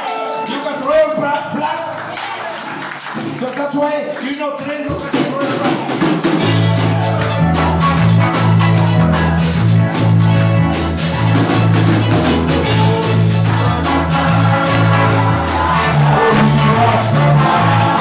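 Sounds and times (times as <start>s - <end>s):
drums: 4.8s - 18.0s
bass line: 5.3s - 18.0s
strummed guitar: 6.1s - 18.0s.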